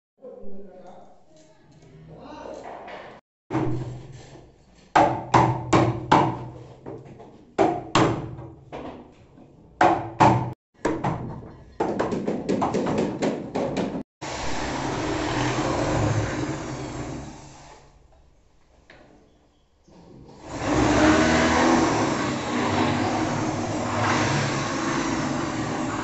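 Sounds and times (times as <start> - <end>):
electric drill running: 14.2 - 17.8, 20.4 - 26.0.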